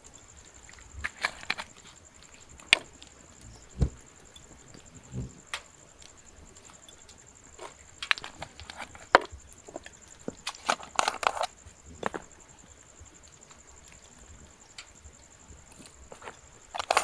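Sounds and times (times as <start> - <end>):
dry wood crunching and cracking: 7.5 - 12.3.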